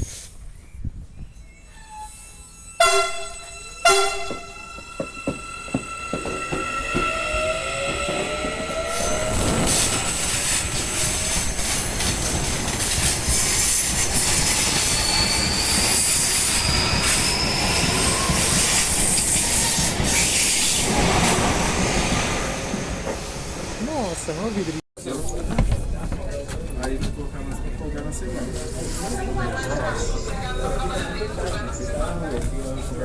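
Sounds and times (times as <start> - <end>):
high wheel squeal: 1.2 - 11.6, 13.2 - 21.0.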